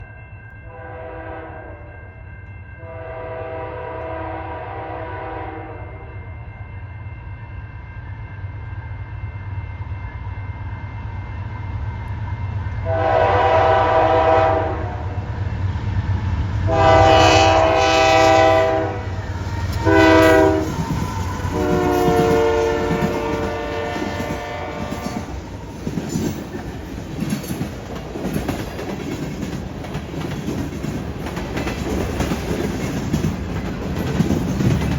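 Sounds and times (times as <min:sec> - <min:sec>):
locomotive air horn blasts: 0:00.7 - 0:01.8, 0:02.8 - 0:06.1, 0:12.8 - 0:15.2, 0:16.7 - 0:19.2, 0:19.8 - 0:25.3
low locomotive rumble: 0:03.4 - 0:34.9
train wheels clacking over rail joints: 0:19.7 - 0:34.9.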